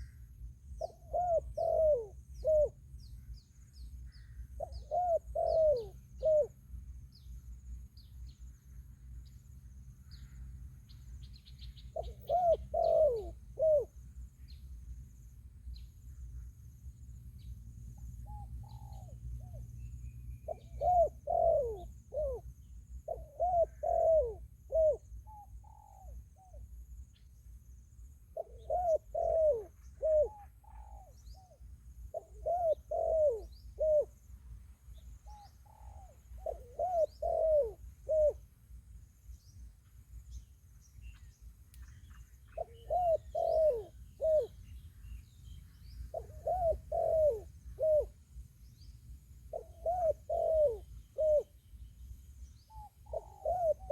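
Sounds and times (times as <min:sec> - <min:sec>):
dove cooing: 0:00.8 - 0:02.8, 0:04.2 - 0:06.6, 0:11.9 - 0:14.0, 0:18.2 - 0:19.7, 0:20.4 - 0:26.6, 0:28.3 - 0:34.2, 0:35.2 - 0:38.4, 0:42.5 - 0:44.6, 0:46.1 - 0:48.2, 0:49.5 - 0:51.6, 0:52.6 - 0:53.9.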